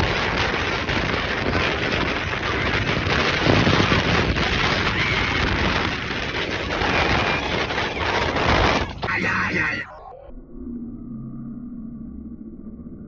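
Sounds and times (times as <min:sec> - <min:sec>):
wind buffeting microphone: 0:00.0 - 0:09.8
boat rumble: 0:00.0 - 0:09.9.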